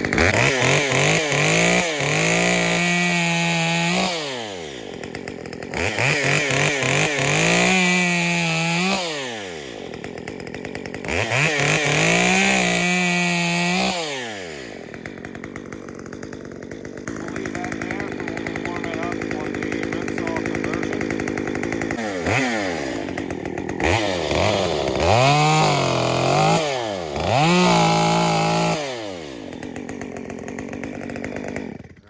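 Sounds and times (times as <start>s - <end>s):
chainsaw revving: 0.0s - 32.0s.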